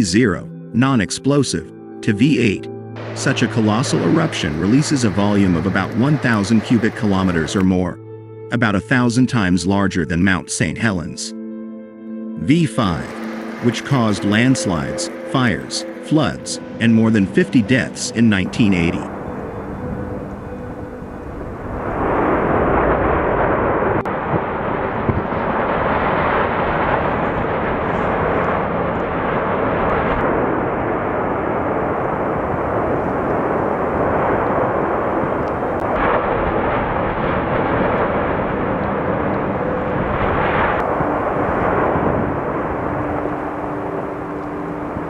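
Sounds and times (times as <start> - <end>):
loud steady rushing roar: 3.0 - 7.6, 12.9 - 16.8, 18.4 - 45.0.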